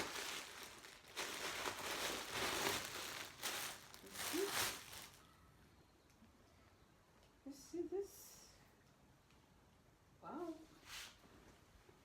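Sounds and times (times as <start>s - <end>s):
plastic wrapping crinkling: 0.0s - 5.3s.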